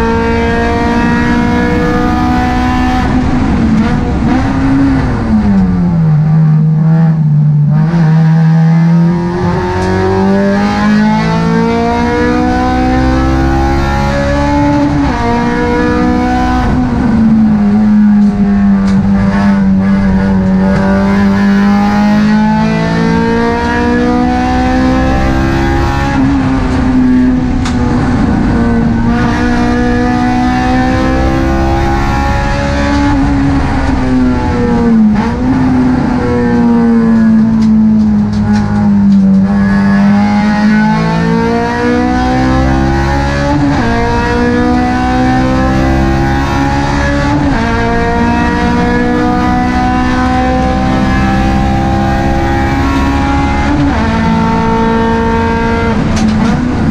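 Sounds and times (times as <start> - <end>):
car engine revving through gears: 0.0 - 56.9.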